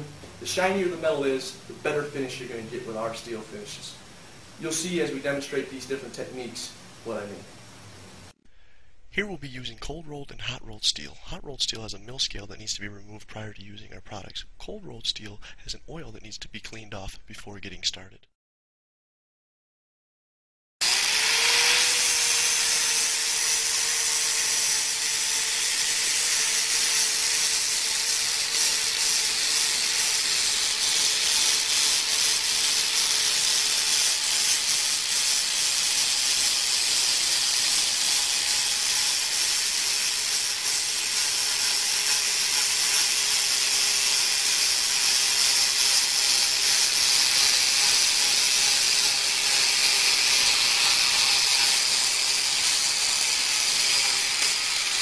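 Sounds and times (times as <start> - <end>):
abrasive power tool grinding steel: 20.8 - 55.0.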